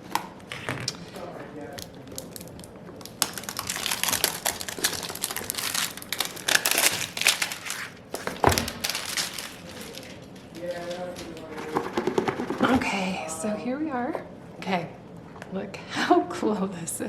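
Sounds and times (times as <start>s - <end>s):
packaging crinkling: 0.4s - 12.6s.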